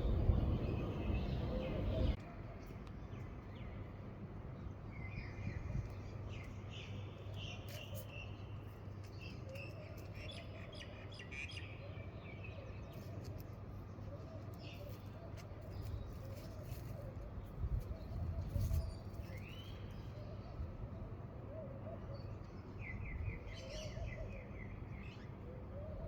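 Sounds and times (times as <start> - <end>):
small birds chirping and singing: 0.0 - 3.9
low background hum: 0.0 - 26.0.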